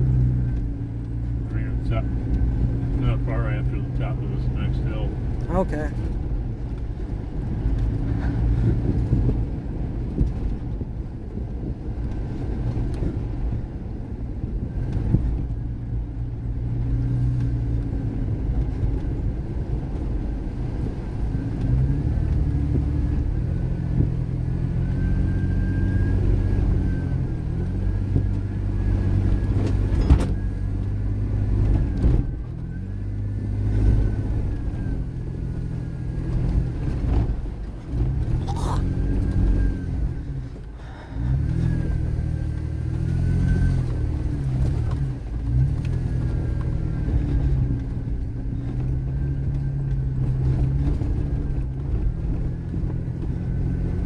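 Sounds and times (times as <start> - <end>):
road rumble: 0.0 - 54.0
vehicle engine hum: 0.0 - 54.0.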